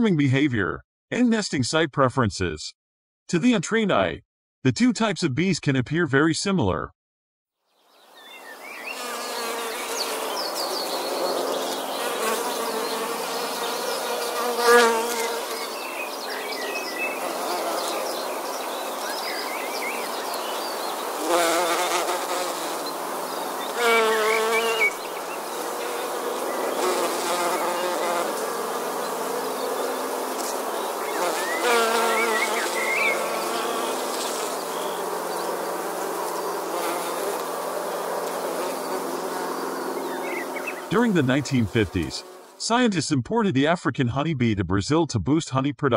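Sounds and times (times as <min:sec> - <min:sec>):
bees buzzing: 0:08.2 - 0:42.6
single bee passing close: 0:08.3 - 0:42.6.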